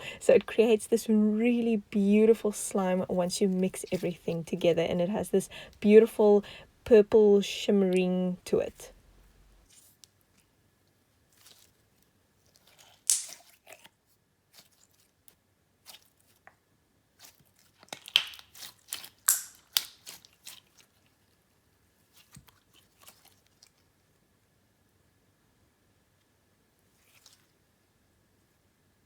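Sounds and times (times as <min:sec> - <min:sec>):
slime sticky clicks and pops: 0:13.0 - 0:13.5, 0:17.9 - 0:20.2.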